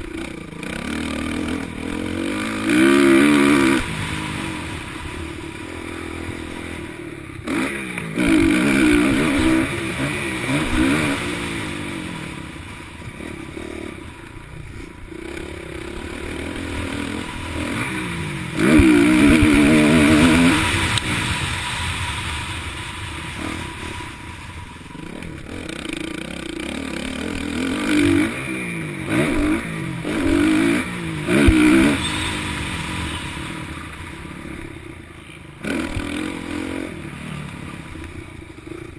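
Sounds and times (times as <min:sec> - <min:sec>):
motocross bike engines revving: 0:00.0 - 0:38.9.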